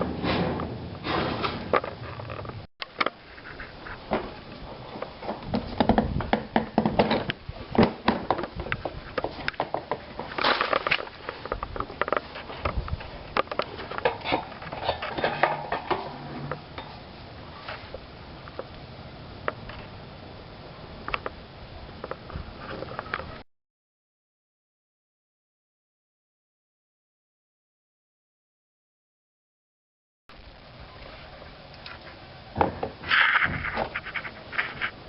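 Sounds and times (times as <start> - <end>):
tools and parts being handled: 7.0 - 17.0, 33.0 - 35.0.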